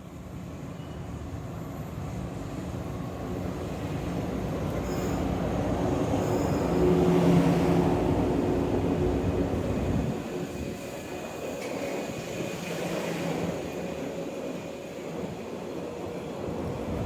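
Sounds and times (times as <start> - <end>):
train passing on rails: 0.0 - 17.0.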